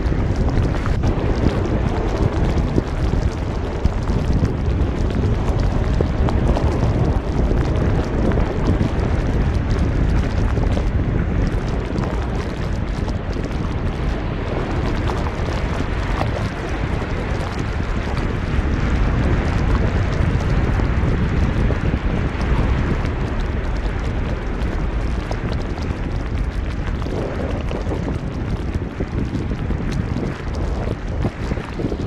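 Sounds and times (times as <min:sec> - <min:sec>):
strong wind buffeting microphone: 0:00.0 - 0:32.0.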